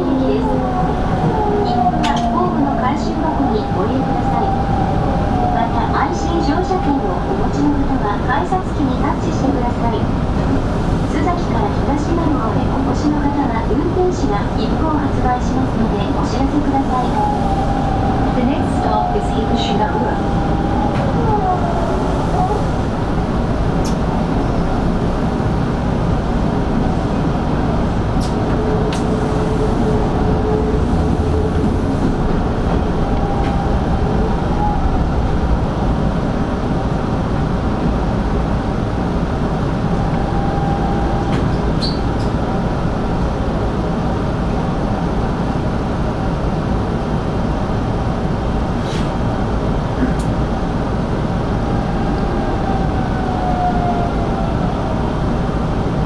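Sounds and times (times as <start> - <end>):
wheels rumbling on rails: 0.0 - 56.0.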